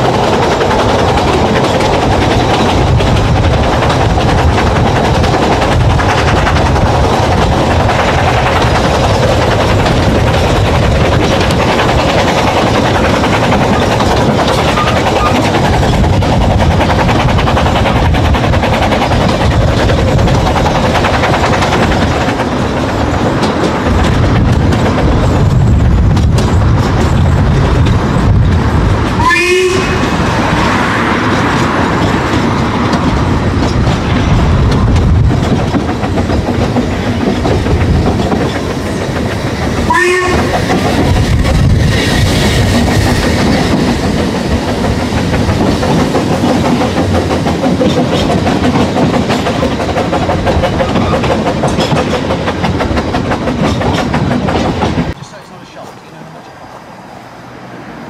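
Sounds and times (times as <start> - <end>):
rushing air: 0.0 - 55.2
train wheels rumbling on track: 0.0 - 58.0
train whistle toots: 29.2 - 30.2, 39.9 - 40.6.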